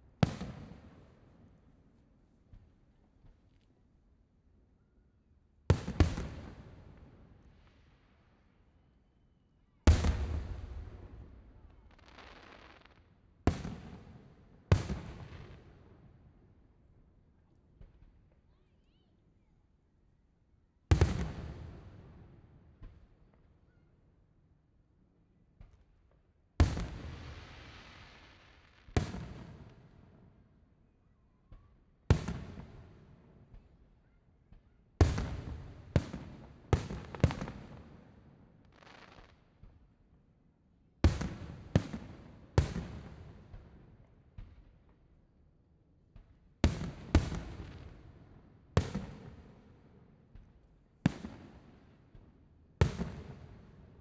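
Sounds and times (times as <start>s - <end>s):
fireworks bursting with bangs: 0.2s - 1.1s, 9.9s - 14.1s, 26.6s - 29.7s, 35.0s - 38.1s, 48.8s - 49.6s, 52.8s - 53.8s
fireworks bangs with echo: 0.2s - 1.2s, 9.9s - 15.8s, 20.9s - 22.0s, 26.6s - 29.9s, 31.5s - 33.8s, 34.6s - 39.8s, 41.0s - 44.7s, 46.1s - 54.0s.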